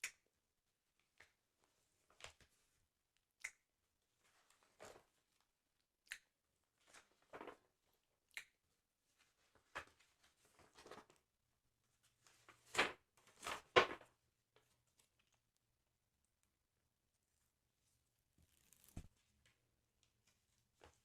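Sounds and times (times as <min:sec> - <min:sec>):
paper rustling and crinkling: 0:09.4 - 0:11.2.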